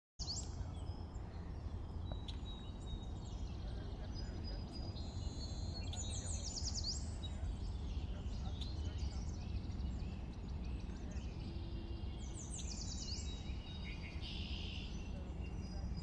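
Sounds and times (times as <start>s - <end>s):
birds chirping: 0.2s - 16.0s
low outdoor rumble: 0.2s - 16.0s.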